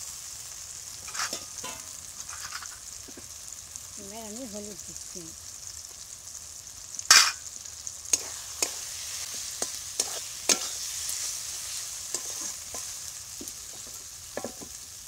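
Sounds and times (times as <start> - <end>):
masala sizzling in oil: 0.0 - 15.0
metal spatula scraping pan: 1.0 - 2.8, 7.1 - 7.4, 8.2 - 13.0.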